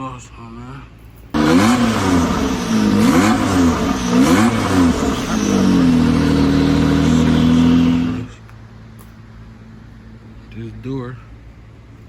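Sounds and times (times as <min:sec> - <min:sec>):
engine revving through exhaust: 0:01.4 - 0:08.4.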